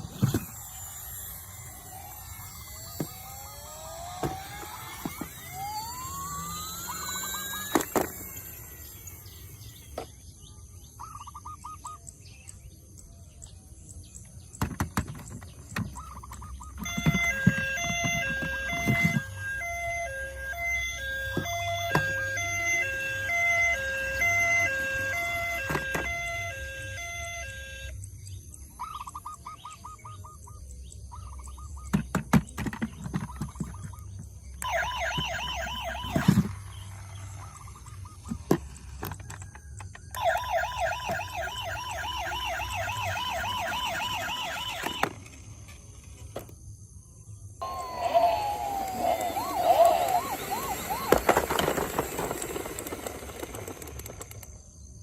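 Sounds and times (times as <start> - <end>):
toy siren two-tone melody: 0.0 - 10.1, 15.8 - 28.0, 34.5 - 45.3, 47.6 - 54.4
toy siren warbling yelp: 0.0 - 10.1, 15.8 - 28.0, 28.8 - 30.4, 34.6 - 45.3, 47.6 - 54.4.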